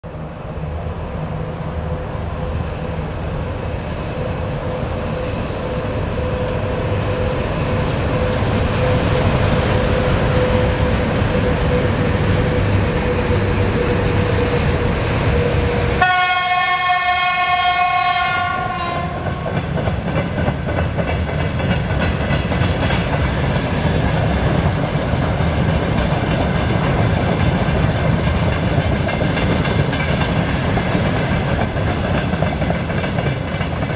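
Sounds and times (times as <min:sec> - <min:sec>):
electric locomotive running: 0:00.1 - 0:33.9
wheels clacking over rail joints: 0:06.2 - 0:16.1, 0:18.5 - 0:33.9
train horn blast: 0:15.3 - 0:19.5.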